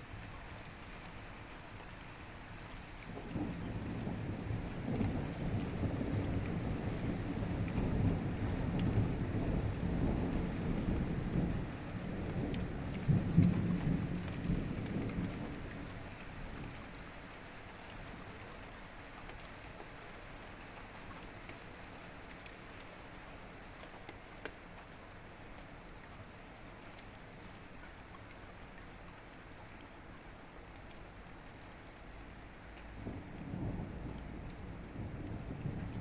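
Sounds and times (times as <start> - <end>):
steady rain: 0.0 - 36.0
raindrops ticking: 0.1 - 36.0
thunder rumbling: 3.2 - 16.0, 32.9 - 36.0.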